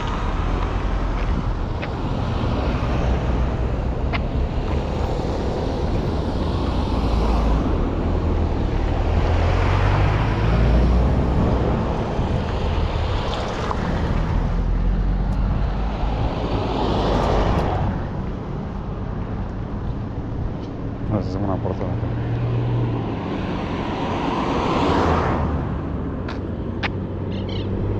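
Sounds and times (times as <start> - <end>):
wind buffeting microphone: 0.9 - 8.5.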